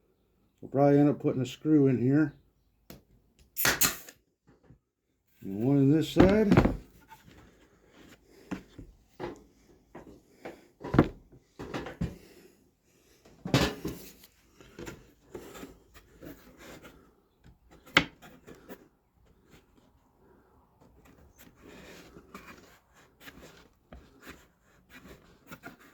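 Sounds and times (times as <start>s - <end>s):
wooden boards knocking and clattering: 6.1s - 7.0s, 10.8s - 12.1s.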